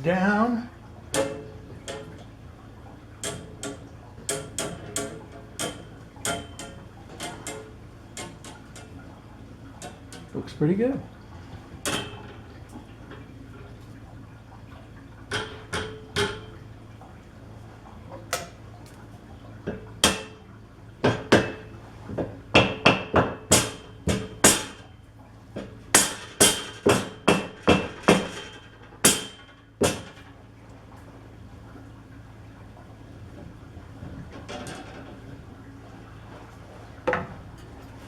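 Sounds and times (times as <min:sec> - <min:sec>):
hammer striking steel: 0:22.6 - 0:24.8, 0:29.1 - 0:30.1.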